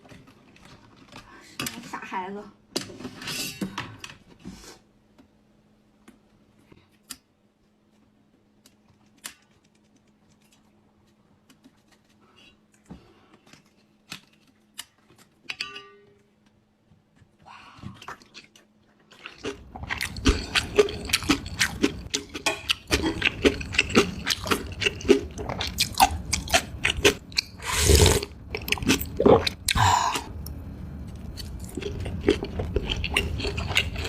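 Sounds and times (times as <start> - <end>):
wet chewing mouth clicks: 19.2 - 30.3, 31.2 - 34.0.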